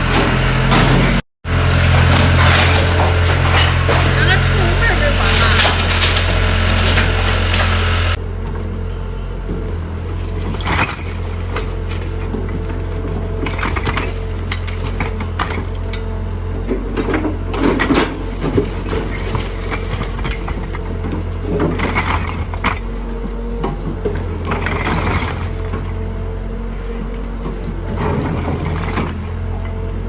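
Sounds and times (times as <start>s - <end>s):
building material crunching: 0.0s - 8.2s
heavy diesel machine running: 0.0s - 30.0s.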